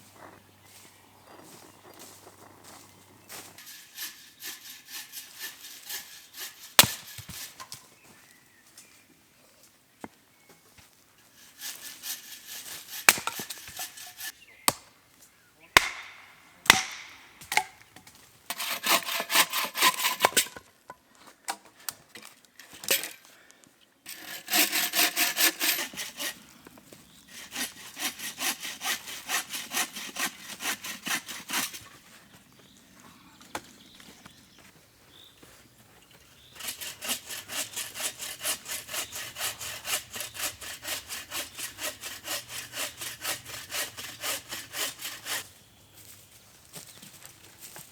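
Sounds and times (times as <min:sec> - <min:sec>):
hand saw cutting wood: 0:03.3 - 0:07.8, 0:11.2 - 0:14.4, 0:15.8 - 0:17.8, 0:18.5 - 0:20.6, 0:24.1 - 0:26.4, 0:27.3 - 0:32.1, 0:36.4 - 0:45.5
wood knocking and cracking: 0:15.8 - 0:18.1.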